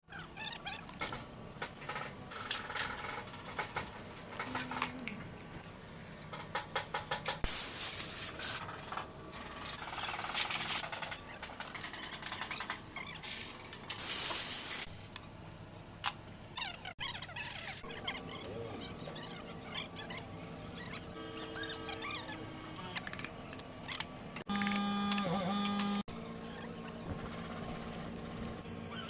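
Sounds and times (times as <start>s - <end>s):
loud hiss bursts: 7.4s - 8.6s, 14.0s - 14.9s
engine running with clattering ticks: 27.2s - 28.7s.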